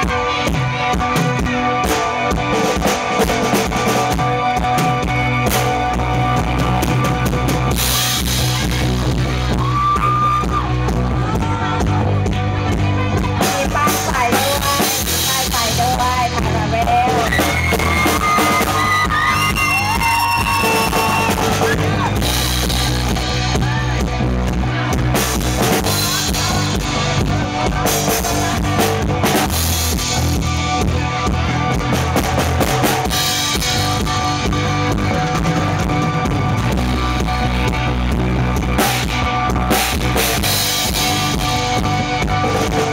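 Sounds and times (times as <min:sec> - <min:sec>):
bass guitar: 0:00.0 - 0:42.9
drum kit: 0:00.0 - 0:42.9
rock band playing: 0:00.0 - 0:42.9.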